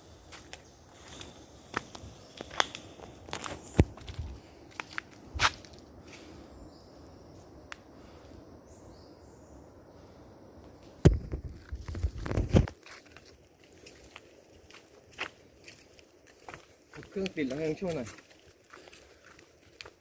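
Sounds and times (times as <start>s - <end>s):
crackling footsteps on forest trail: 0.0s - 20.0s.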